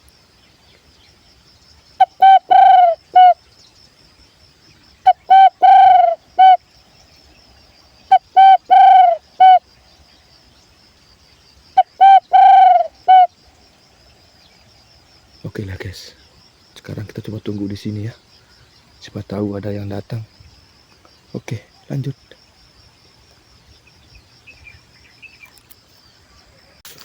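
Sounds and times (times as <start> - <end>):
dove call whistle: 2.0 - 3.4, 5.1 - 6.6, 8.1 - 9.6, 11.8 - 13.3.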